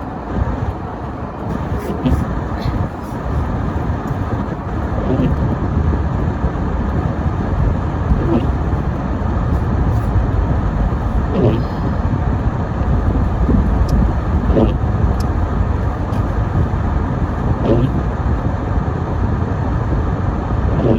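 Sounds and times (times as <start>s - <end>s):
faint voices: 0.0s - 5.6s, 7.0s - 12.2s, 12.8s - 18.2s
car driving road noise: 0.0s - 20.9s.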